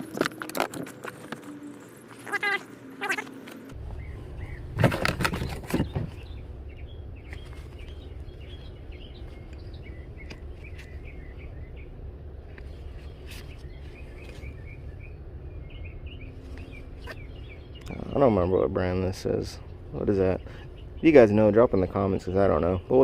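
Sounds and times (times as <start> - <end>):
small birds chirping: 1.5 - 23.0
low rumble: 3.7 - 21.6
rustling clatter: 4.7 - 6.4.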